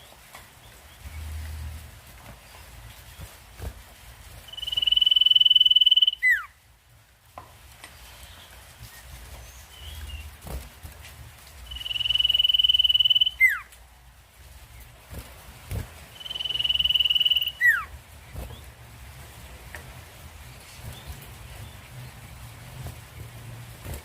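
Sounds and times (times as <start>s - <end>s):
bird trilling song: 4.4s - 6.6s, 11.6s - 13.7s, 16.1s - 18.7s.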